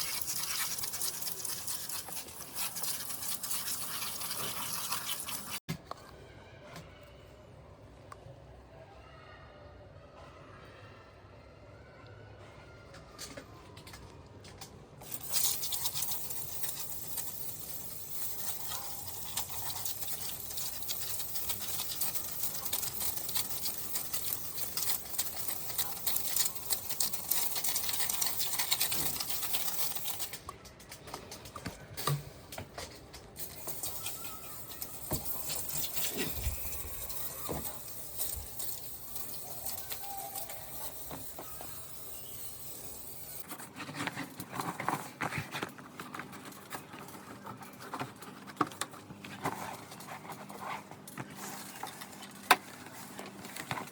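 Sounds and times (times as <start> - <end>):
spray hissing on air conditioner: 15.1 - 30.3, 33.4 - 43.4.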